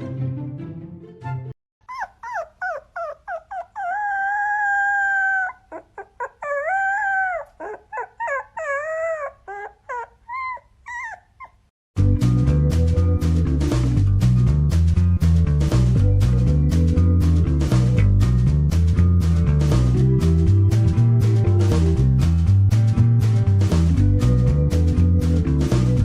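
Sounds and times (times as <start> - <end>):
music: 0.0 - 1.6, 12.0 - 26.0
dog howling and yelping: 1.9 - 11.7.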